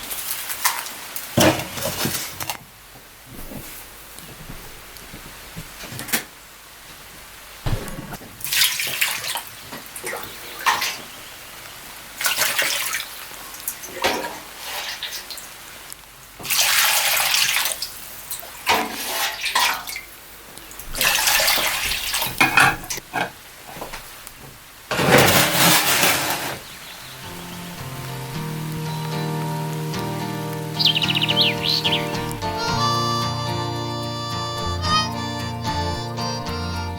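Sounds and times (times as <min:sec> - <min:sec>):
water running in bursts: 0:20.8 - 0:24.2, 0:25.1 - 0:36.7.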